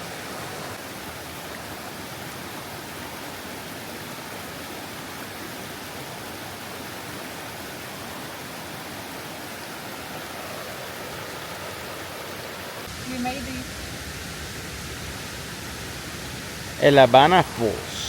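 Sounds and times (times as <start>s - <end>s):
waterfall roaring: 0.0s - 18.0s.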